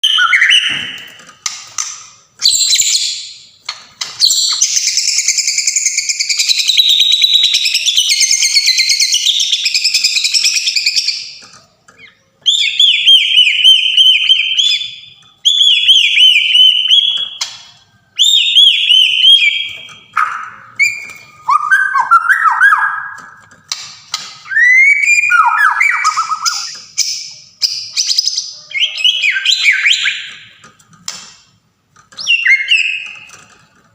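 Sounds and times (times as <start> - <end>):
songbird singing: 24.5 - 30.5.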